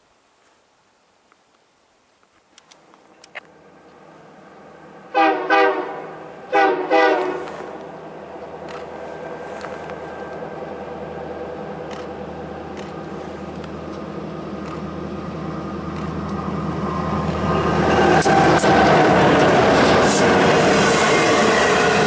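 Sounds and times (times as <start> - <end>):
train rumbling: 2.9 - 22.0
locomotive air horn blasts: 5.1 - 7.8, 20.6 - 22.0.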